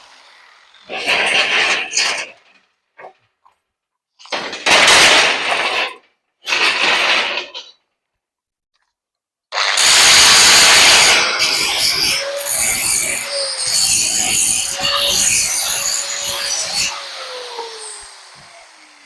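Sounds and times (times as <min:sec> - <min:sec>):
steady motor whine: 0:00.0 - 0:01.0, 0:09.6 - 0:19.0
electric sander grinding metal: 0:00.0 - 0:02.0, 0:09.6 - 0:19.0.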